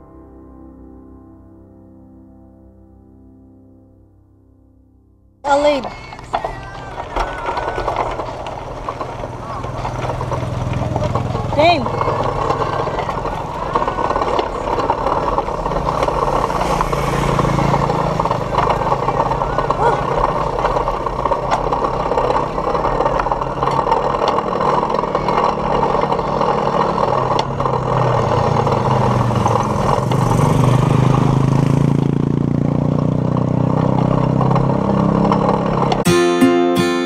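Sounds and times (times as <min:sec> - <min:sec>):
motor engine hum: 0:05.5 - 0:36.1
camera rattling: 0:05.8 - 0:30.4
guitar music: 0:35.8 - 0:37.0.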